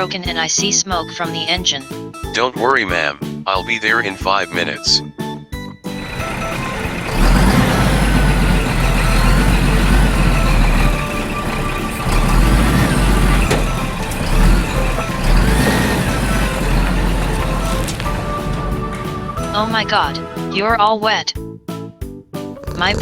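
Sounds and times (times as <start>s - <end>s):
background music: 0.0s - 23.0s
truck engine running: 5.9s - 20.6s.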